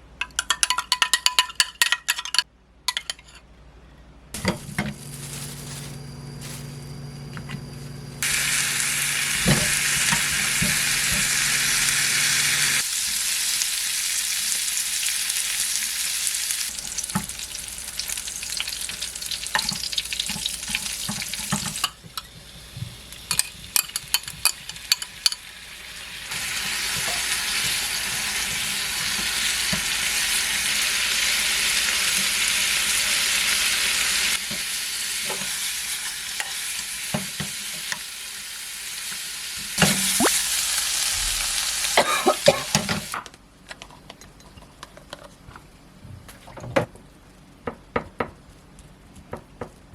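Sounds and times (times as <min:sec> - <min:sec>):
pork frying and sizzling: 0:08.2 - 0:43.2
utensils tapping against pan: 0:23.3 - 0:25.5.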